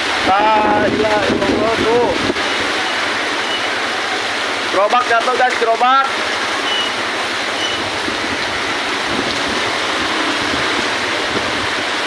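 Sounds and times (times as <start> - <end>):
gusty wind on microphone: 0.0 - 2.8, 7.5 - 12.0.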